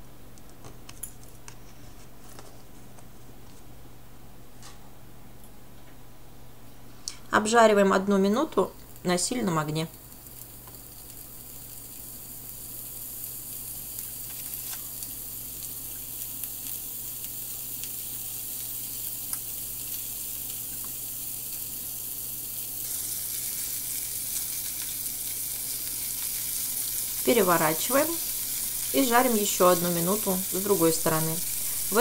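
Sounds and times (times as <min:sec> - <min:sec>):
prawns sizzling in a frying pan: 0:08.1 - 0:32.0.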